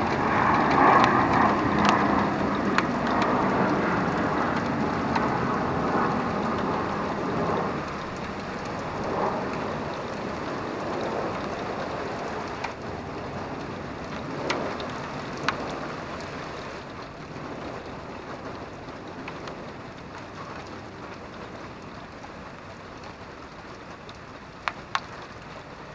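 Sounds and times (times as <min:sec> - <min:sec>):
steady rain falling: 0:00.0 - 0:25.9.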